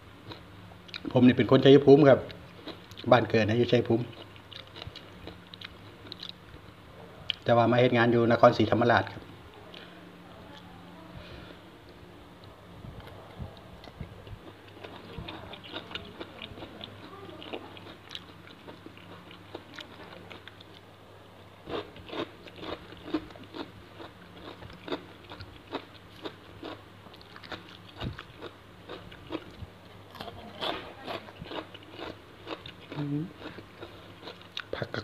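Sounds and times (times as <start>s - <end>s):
wet crisp chewing: 21.7s - 34.9s.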